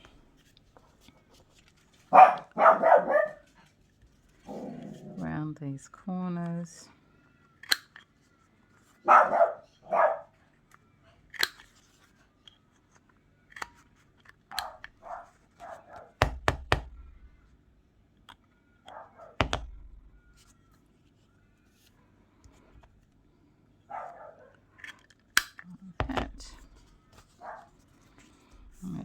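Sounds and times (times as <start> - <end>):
dog barking: 2.1 - 3.5, 9.0 - 10.4, 14.5 - 16.2, 18.8 - 19.4, 23.9 - 24.6, 27.4 - 27.7.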